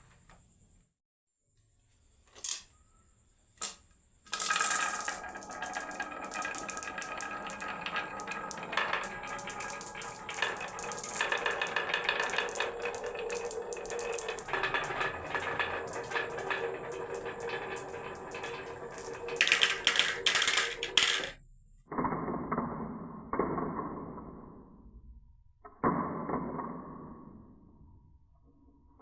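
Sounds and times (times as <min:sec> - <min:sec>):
marbles rattling down wooden run: 0:04.3 - 0:21.4.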